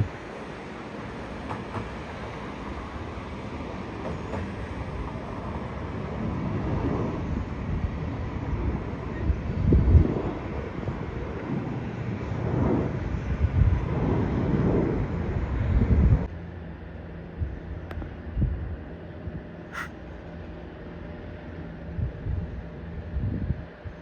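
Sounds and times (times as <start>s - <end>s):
wind on microphone: 6.3s - 16.3s.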